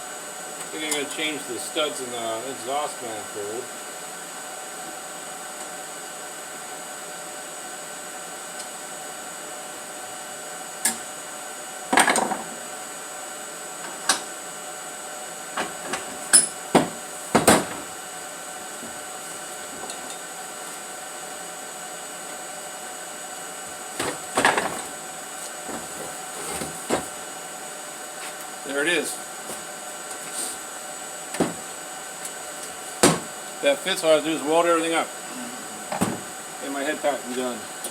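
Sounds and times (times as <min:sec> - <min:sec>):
steady hum: 0:15.0 - 0:37.9.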